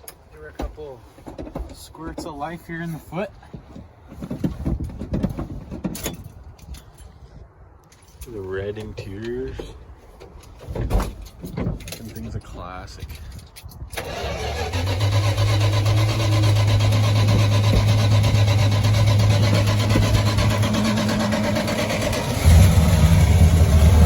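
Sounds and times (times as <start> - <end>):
engine starting and idling: 14.0 - 24.0.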